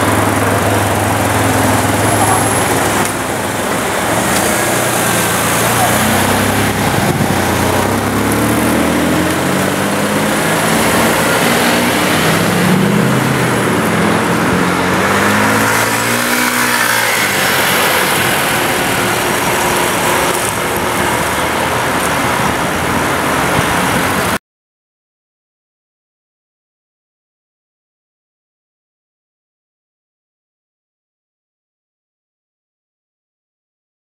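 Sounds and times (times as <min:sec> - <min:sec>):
car engine hard acceleration: 0:00.0 - 0:24.4.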